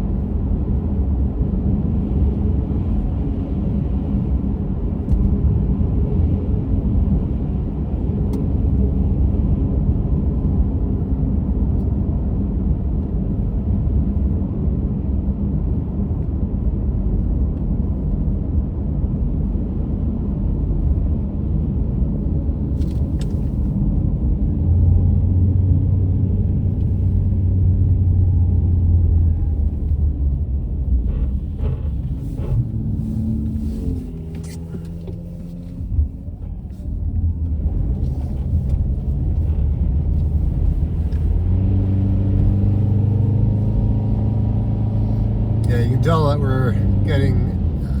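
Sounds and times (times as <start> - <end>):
car tyres and engine rumble: 0.0 - 48.0.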